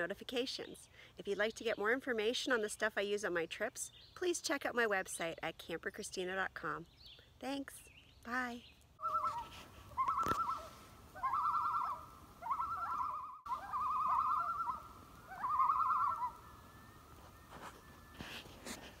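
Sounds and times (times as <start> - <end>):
bird quavering call: 9.0 - 18.1.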